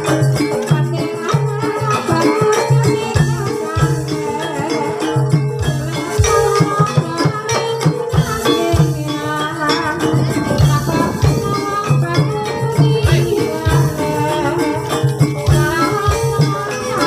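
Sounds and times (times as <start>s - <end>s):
metallophones ringing melody: 8.2s - 15.6s
low drum strokes: 9.7s - 13.8s.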